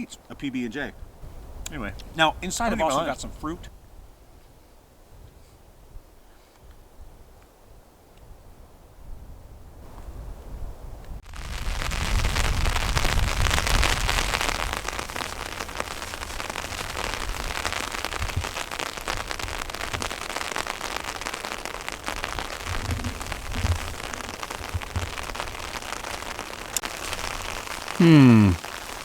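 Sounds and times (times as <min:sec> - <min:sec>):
rain falling: 0:11.2 - 0:29.0.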